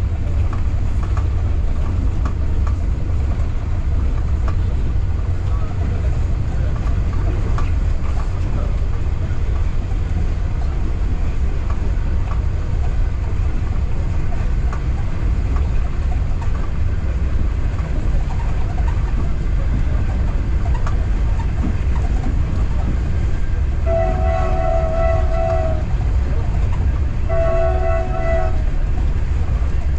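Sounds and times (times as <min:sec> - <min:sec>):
train wheels rumbling on rail: 0:00.0 - 0:29.9
train horn held note: 0:23.8 - 0:25.9, 0:27.3 - 0:28.7.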